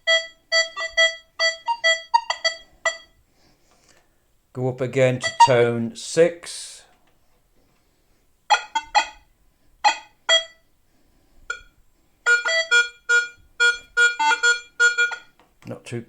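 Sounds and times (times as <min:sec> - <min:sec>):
metal detector beeps: 0:00.0 - 0:03.2, 0:05.2 - 0:05.6, 0:08.5 - 0:09.2, 0:09.8 - 0:10.6, 0:12.3 - 0:15.4.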